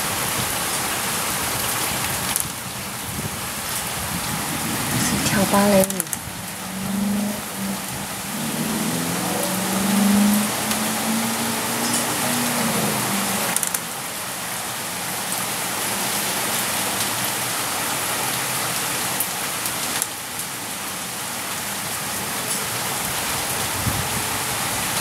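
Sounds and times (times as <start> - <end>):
steady rain falling: 0.0 - 25.0
low rumble: 4.0 - 13.1
low hum: 4.8 - 13.6.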